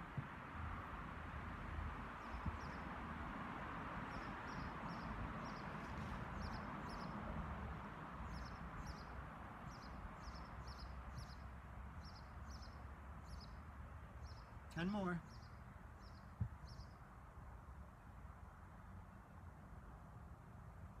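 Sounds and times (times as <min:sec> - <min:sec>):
outdoor background hiss: 0:00.0 - 0:21.0
bird chirping: 0:04.1 - 0:07.2, 0:08.2 - 0:09.1, 0:09.7 - 0:11.4, 0:12.0 - 0:13.6, 0:14.2 - 0:17.0.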